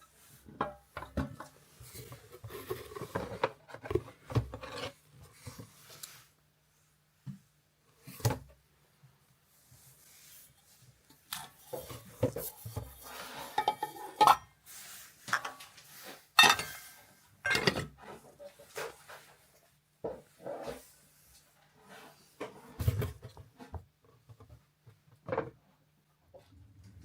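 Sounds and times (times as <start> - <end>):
dishes and utensils clattering: 11.6 - 14.5, 16.4 - 19.0.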